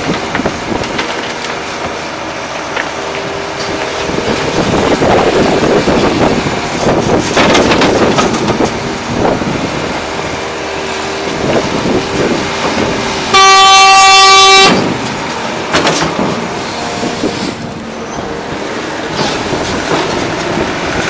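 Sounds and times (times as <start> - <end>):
excavator hydraulic hum: 0.0 - 21.0
loud horn blast: 11.4 - 15.3.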